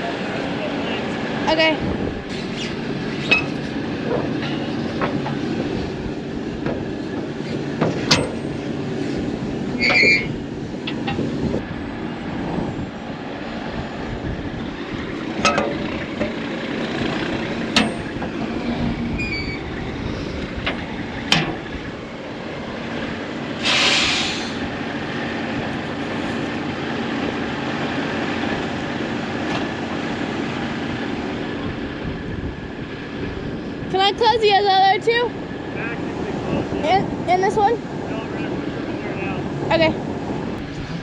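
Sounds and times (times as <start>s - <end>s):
farm machinery humming: 0.0s - 34.6s
sharp metallic knocks: 7.8s - 8.6s, 17.7s - 18.5s
short hiss of air: 23.6s - 24.6s.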